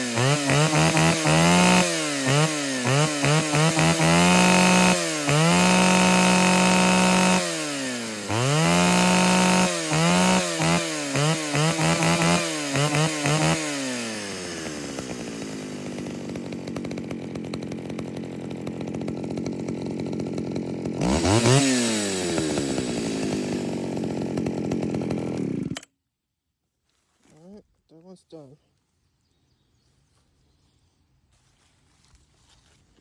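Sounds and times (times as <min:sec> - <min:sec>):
chainsaw revving and idling: 0:00.0 - 0:25.9.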